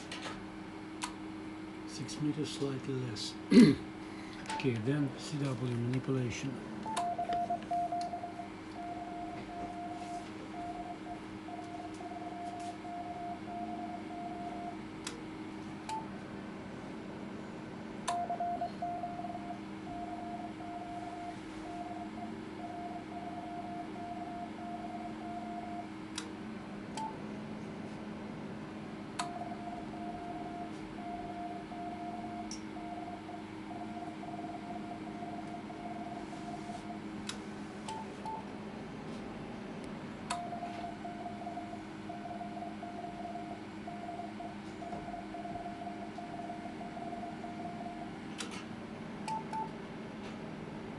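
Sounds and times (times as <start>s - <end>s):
steady low hum: 0.0s - 50.9s
morse code beeping: 6.8s - 14.8s, 18.1s - 25.9s, 29.3s - 37.0s, 40.4s - 48.1s.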